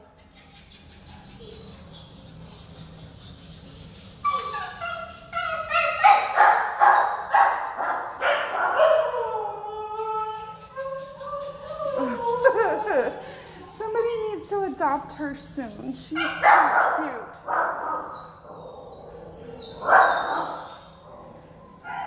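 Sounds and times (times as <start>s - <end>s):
dogs howling: 3.7s - 14.0s, 16.0s - 22.0s
dogs barking: 4.3s - 9.5s, 16.1s - 22.0s.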